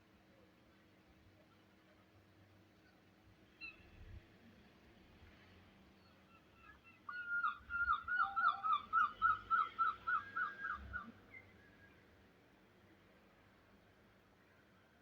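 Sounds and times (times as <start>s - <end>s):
bird whistling call: 6.6s - 11.5s.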